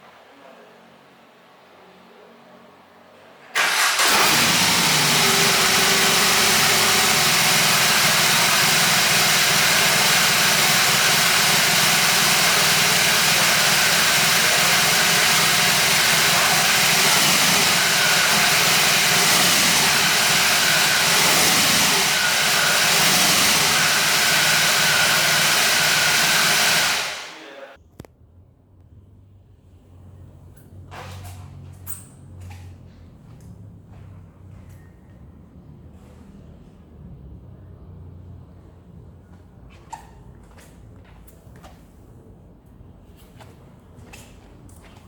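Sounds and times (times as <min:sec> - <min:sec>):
motorcycle engine idling: 0:05.8 - 0:27.3.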